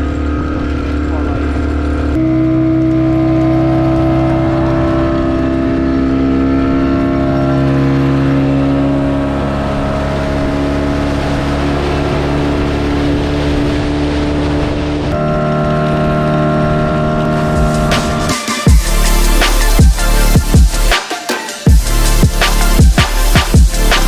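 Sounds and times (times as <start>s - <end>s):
speedboat engine running: 0.0s - 24.0s
rushing water and wind: 8.8s - 15.2s.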